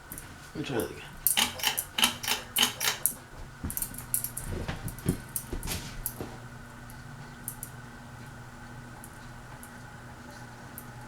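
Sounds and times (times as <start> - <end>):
faint steady hum: 0.0 - 11.0
quick clicks: 1.2 - 3.2.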